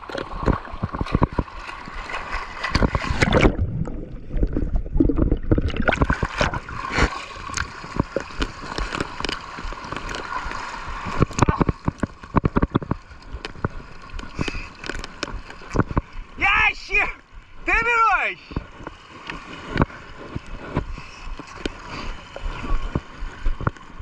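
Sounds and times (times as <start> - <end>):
irregular knocks and clicks: 0.0 - 1.6
water gurgling and sloshing: 0.0 - 24.0.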